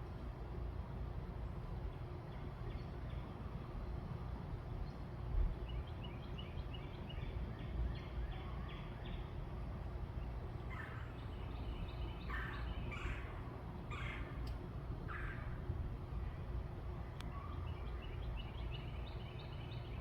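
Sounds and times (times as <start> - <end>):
steady low rumble: 9.1 - 20.0
birds calling: 10.1 - 16.5
harsh bird calls: 10.6 - 14.5.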